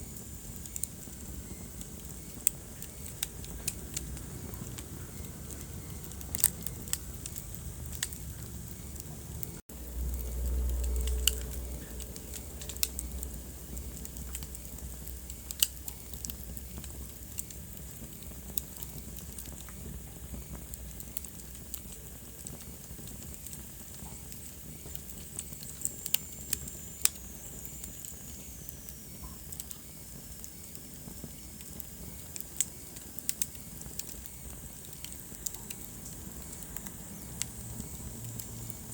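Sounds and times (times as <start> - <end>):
low steady rumble: 0.0 - 25.2
wood fire crackling: 0.0 - 38.9.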